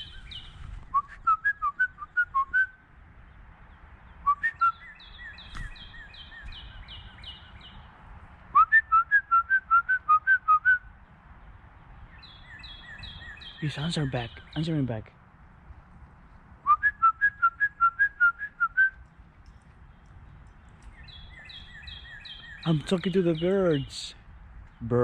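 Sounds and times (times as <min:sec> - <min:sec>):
person whistling: 0:00.9 - 0:02.7, 0:08.6 - 0:10.8, 0:16.7 - 0:19.0
bird whistling downward notes: 0:04.2 - 0:07.5, 0:08.5 - 0:10.9, 0:16.6 - 0:19.0, 0:20.8 - 0:22.7.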